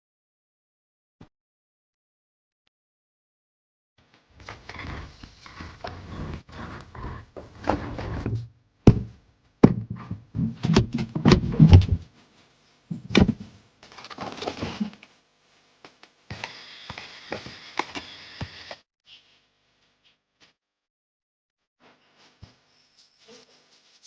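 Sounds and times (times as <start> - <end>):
rough scraping and clattering: 4.4 - 8.5
heavy thuds and knocks: 5.8 - 12.1, 12.9 - 13.6.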